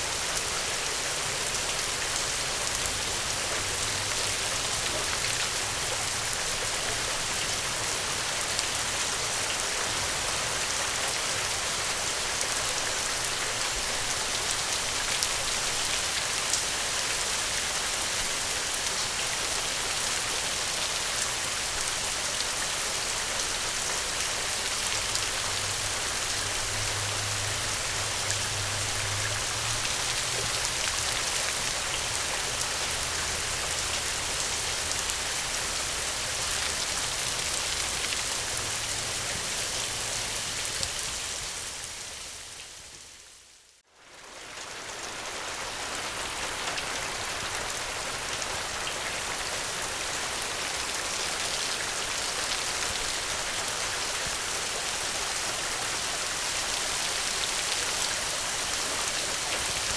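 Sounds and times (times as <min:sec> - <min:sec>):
gentle rain pattering: 0:00.0 - 0:59.9.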